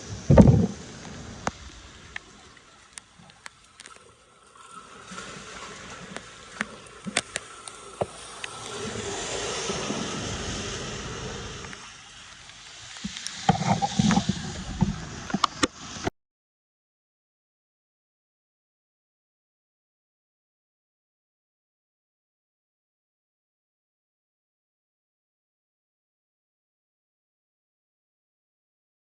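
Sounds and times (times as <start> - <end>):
water splashing and rushing: 0.0 - 16.1.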